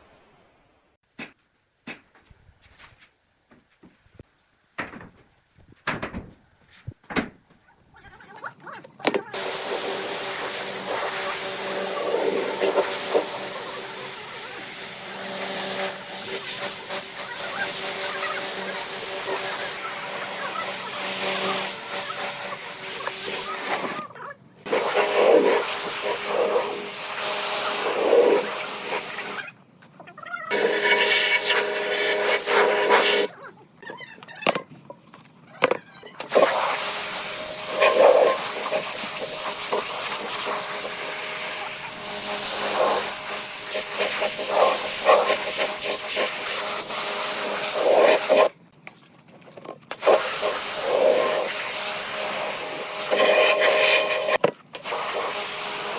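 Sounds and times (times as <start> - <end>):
power tool grinding wood: 9.0 - 29.4, 30.5 - 33.3, 35.6 - 48.3.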